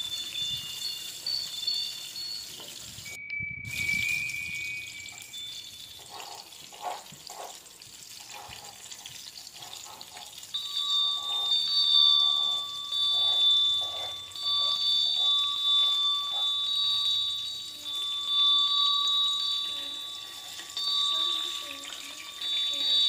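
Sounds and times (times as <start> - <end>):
high steady tones: 0.0 - 6.6, 10.5 - 23.0
omelette sizzling in oil: 4.1 - 15.0.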